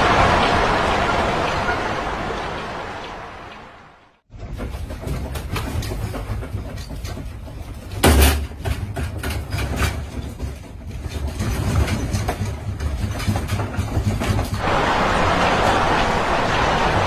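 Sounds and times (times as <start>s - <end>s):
loud crash: 0.0s - 3.5s
rattling and knocking: 4.3s - 14.6s.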